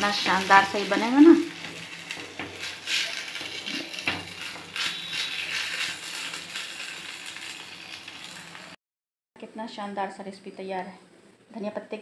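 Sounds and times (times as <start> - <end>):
batter crackling in hot oil: 0.0 - 8.8.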